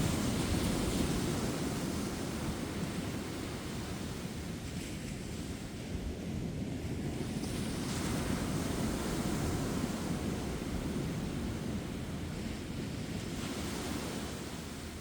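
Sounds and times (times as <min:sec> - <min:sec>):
ocean surf breaking on beach: 0:07.1 - 0:15.0.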